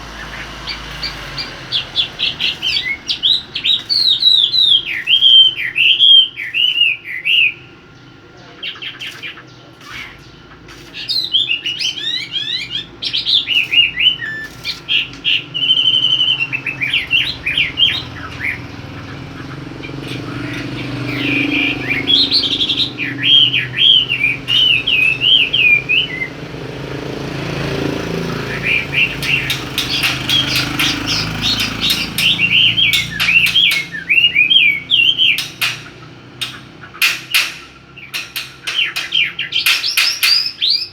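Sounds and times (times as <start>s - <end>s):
songbird warbling and chirping: 0.0s - 40.9s
rapid sharp clicks or flutters: 0.6s - 5.4s, 9.0s - 12.2s, 13.2s - 15.4s, 24.0s - 40.8s.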